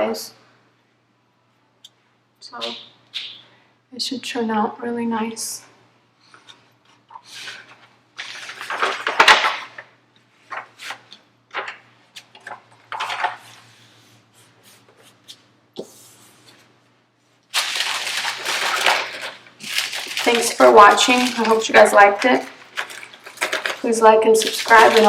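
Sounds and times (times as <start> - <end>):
plastic sheet rustling: 7.2 - 13.8, 17.5 - 25.0.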